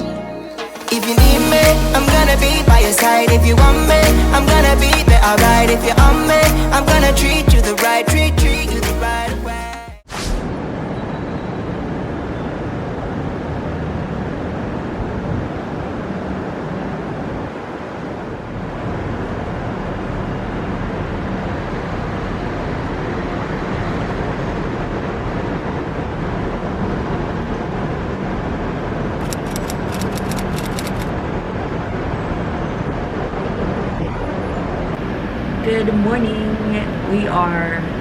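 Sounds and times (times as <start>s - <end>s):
road traffic rumble: 10.6s - 38.0s
sharp clicks: 29.2s - 31.1s.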